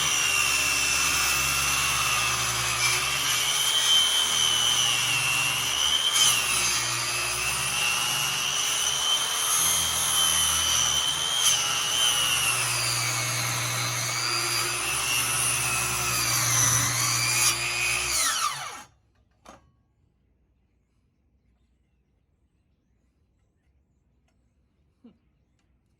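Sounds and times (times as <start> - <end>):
electric saw cutting wood: 0.0 - 18.9.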